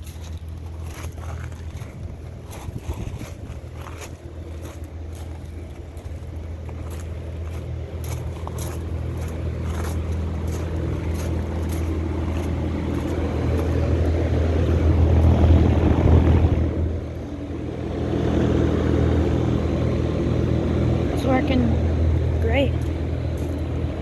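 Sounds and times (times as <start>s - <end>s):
compressor hum: 0.0s - 24.0s
condenser fan rushing: 0.0s - 24.0s.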